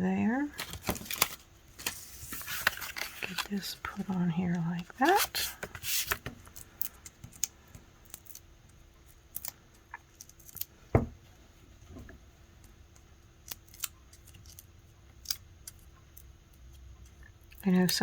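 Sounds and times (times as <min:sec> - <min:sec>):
hands handling cardstock: 0:00.5 - 0:07.8.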